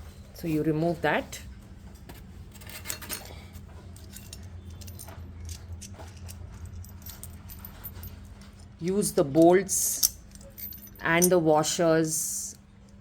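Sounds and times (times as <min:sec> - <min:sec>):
steady low hum: 0:00.0 - 0:13.0
small metal hardware clinking: 0:02.5 - 0:08.7, 0:09.4 - 0:11.4.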